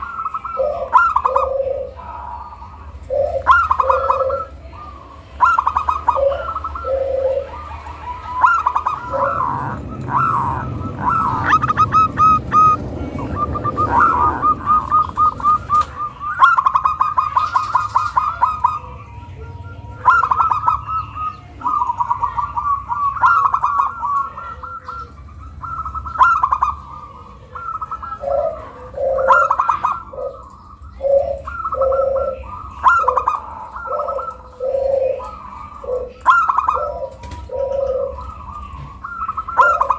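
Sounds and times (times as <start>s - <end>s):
deeper dove coos: 0.0s - 39.9s
dove cooing: 0.0s - 39.9s
low rumble: 7.4s - 16.3s.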